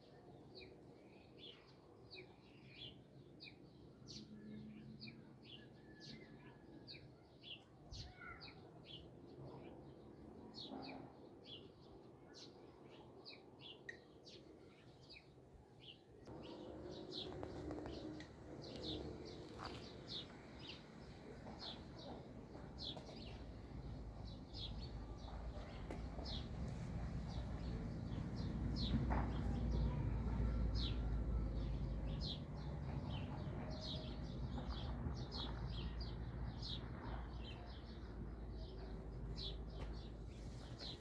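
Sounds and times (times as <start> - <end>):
faint outdoor background: 0.0 - 41.0
small birds chirping: 7.4 - 9.8, 12.3 - 41.0.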